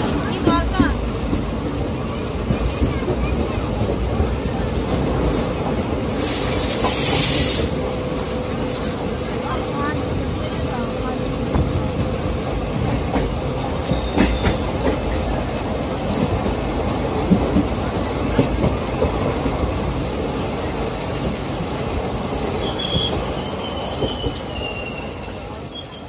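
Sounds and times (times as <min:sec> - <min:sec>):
train wheels rumbling on rail: 0:00.0 - 0:26.0
high wheel squeals: 0:04.9 - 0:08.9, 0:15.3 - 0:16.0, 0:19.7 - 0:26.0.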